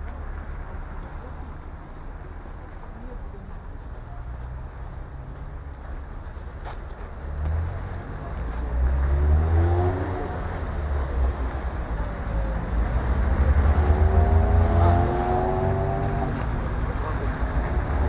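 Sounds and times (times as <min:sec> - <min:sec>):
vehicle engine rumbling: 0:00.0 - 0:18.0
engine revving with rising whine: 0:08.8 - 0:11.2, 0:12.6 - 0:16.5.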